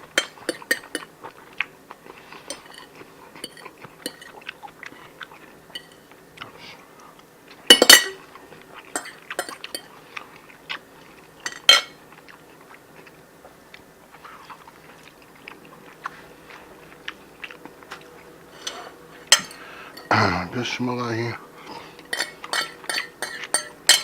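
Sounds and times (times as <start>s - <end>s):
cutlery clinking on dishes: 0.0s - 1.1s, 2.4s - 4.4s, 5.7s - 6.1s, 7.7s - 8.3s, 8.9s - 9.9s, 11.4s - 12.0s, 18.6s - 20.2s, 22.1s - 24.0s.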